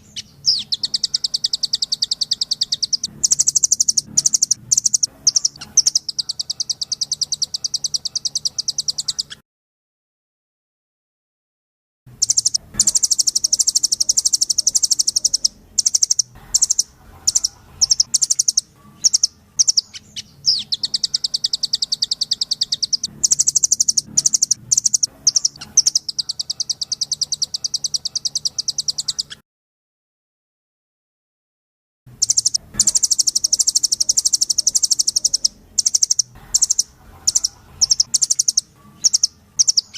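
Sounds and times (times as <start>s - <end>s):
nuthatch song trills: 0.0s - 9.4s, 12.1s - 29.4s, 32.1s - 39.9s.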